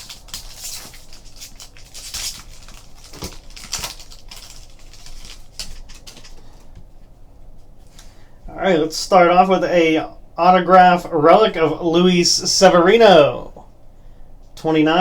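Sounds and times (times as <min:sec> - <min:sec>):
cards and packaging rustling: 0:00.0 - 0:06.9.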